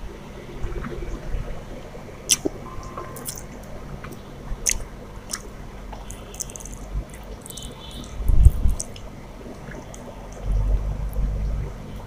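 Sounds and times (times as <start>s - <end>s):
wet mouth clicks and smacks: 2.3s - 2.6s, 3.2s - 10.5s
person chewing food: 2.3s - 10.5s.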